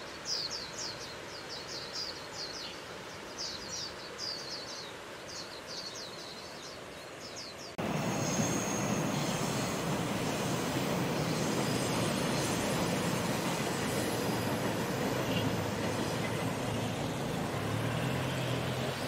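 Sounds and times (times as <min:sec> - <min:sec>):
train rumbling past: 0:07.8 - 0:19.0.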